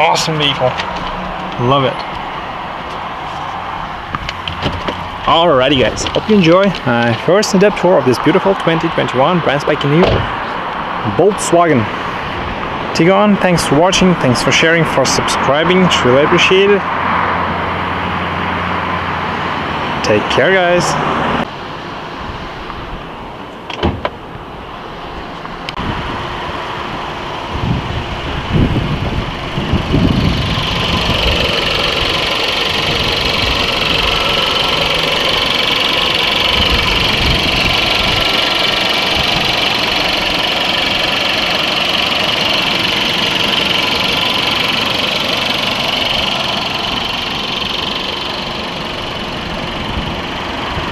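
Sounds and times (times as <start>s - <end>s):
engine running steadily: 0.0s - 50.9s.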